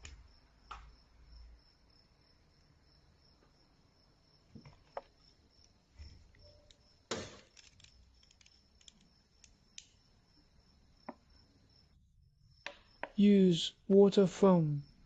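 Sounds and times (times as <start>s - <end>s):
small objects clicking and knocking: 4.6s - 10.0s.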